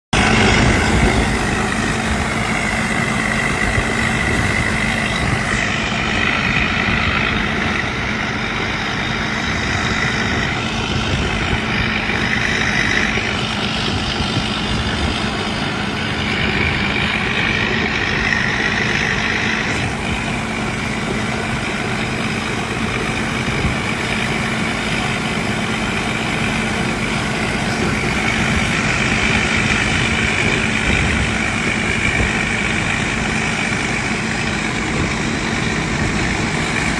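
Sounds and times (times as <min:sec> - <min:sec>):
combine harvester engine running: 0:00.0 - 0:36.9
high engine whine: 0:00.0 - 0:36.9.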